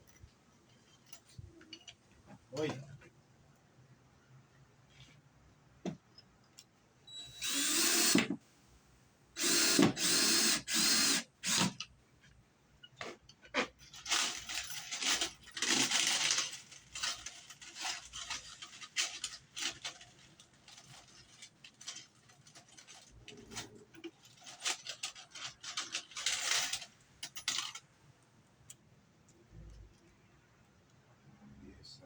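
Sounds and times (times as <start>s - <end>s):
rustling and scraping: 12.2s - 27.9s
metallic clicks and clinks: 13.8s - 27.9s.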